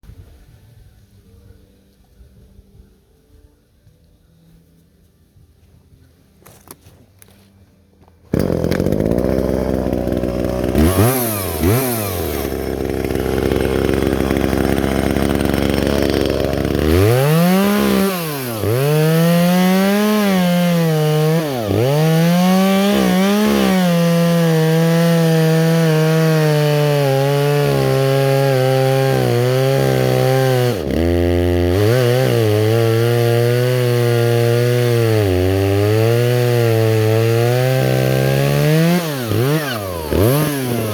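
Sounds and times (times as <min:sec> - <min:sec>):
chainsaw cutting wood: 0:08.3 - 0:40.9.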